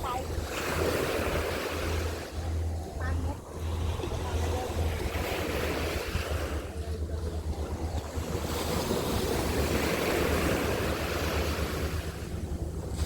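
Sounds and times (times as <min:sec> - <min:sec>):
sea waves washing onto beach: 0:00.0 - 0:13.0
wind buffeting microphone: 0:00.0 - 0:13.0.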